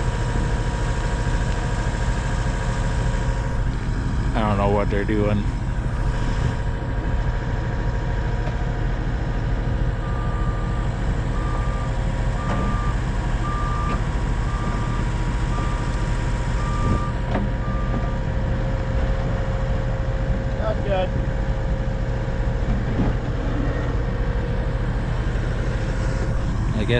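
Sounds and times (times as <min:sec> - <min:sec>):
engine droning: 0:00.0 - 0:26.9
vehicle backup alarm beeping: 0:10.0 - 0:18.4.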